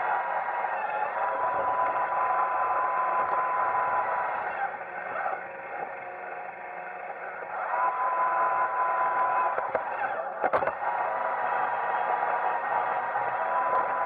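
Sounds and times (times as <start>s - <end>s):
robot vacuum whirring: 1.2s - 7.0s.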